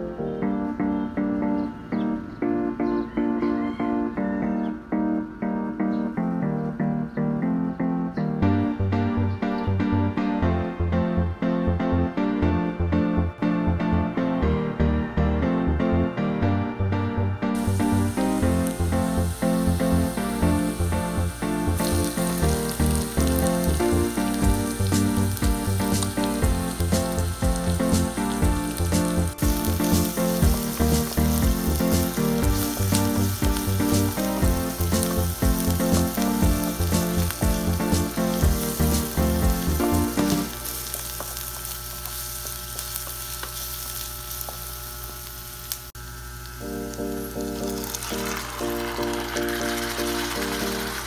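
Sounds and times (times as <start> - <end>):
background music with steady beat: 4.9 - 40.6
garlic and onion sizzling in oil: 17.6 - 51.0.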